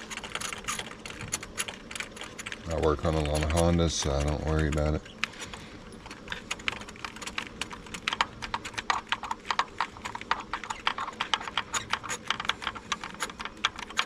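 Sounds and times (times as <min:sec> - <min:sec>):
hand ratchet clicking rapidly: 0:06.3 - 0:14.0.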